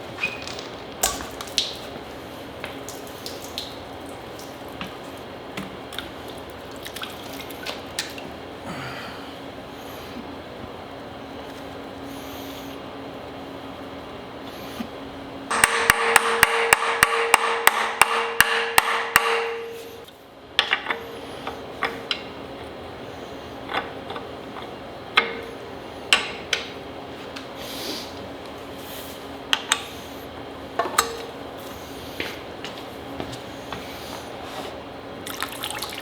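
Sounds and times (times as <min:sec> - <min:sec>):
tools clinking on metal: 0:30.8 - 0:31.3.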